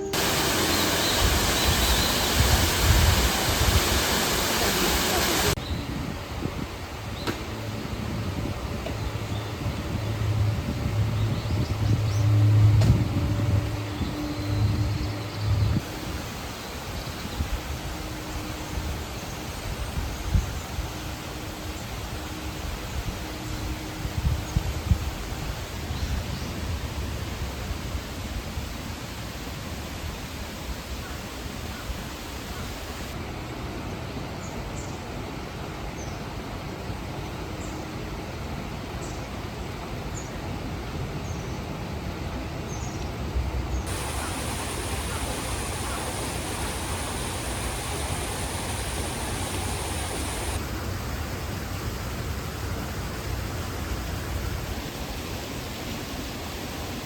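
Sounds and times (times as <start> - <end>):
mountain stream rushing: 0.0 - 5.6, 43.9 - 51.0
high bird chirps: 43.9 - 50.6.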